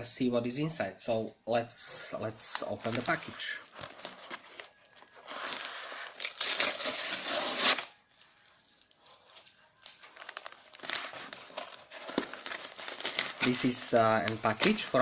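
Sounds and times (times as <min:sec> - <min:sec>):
package tearing: 0:02.5 - 0:08.0, 0:08.8 - 0:15.0.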